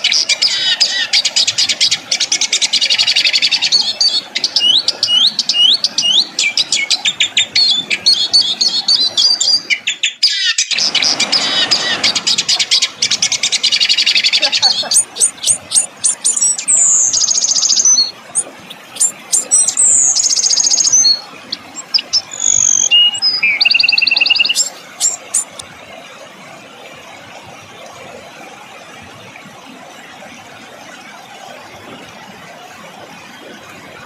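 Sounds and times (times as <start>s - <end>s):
songbird chip notes and trills: 0.0s - 25.7s.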